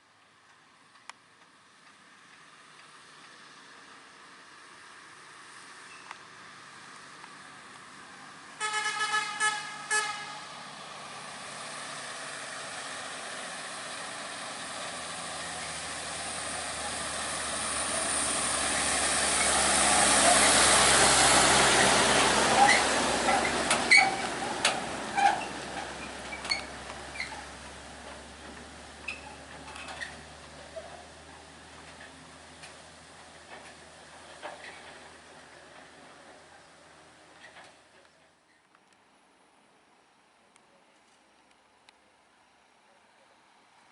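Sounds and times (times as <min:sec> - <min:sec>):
diesel truck climbing: 0:01.8 - 0:38.5
truck horn toots: 0:08.6 - 0:10.5.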